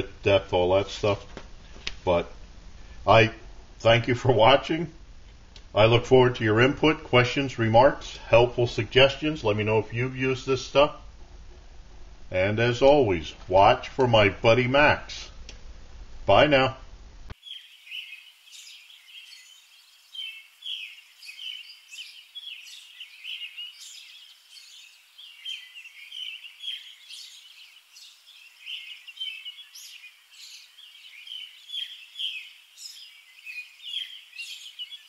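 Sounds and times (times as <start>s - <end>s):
small birds chirping: 17.3s - 35.0s.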